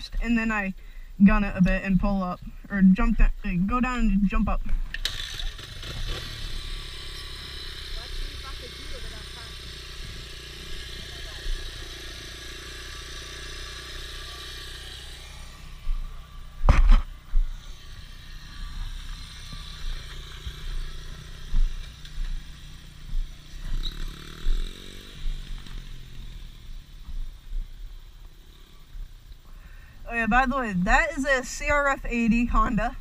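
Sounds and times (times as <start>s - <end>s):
dirt bike engine running: 0.0s - 33.0s
low bumps: 15.1s - 33.0s.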